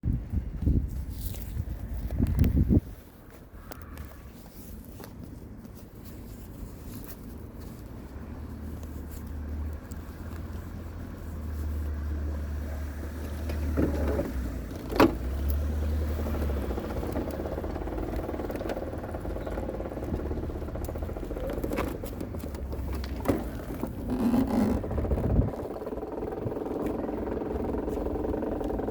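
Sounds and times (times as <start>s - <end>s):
two-stroke engine idling: 11.5s - 28.9s.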